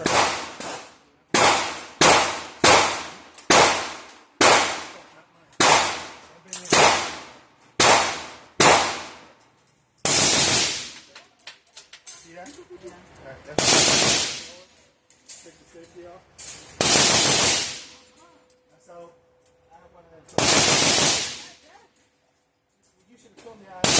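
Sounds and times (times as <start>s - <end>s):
gunshots: 0.0s - 9.3s, 10.0s - 11.0s, 13.6s - 14.6s, 16.8s - 17.9s, 20.4s - 21.6s.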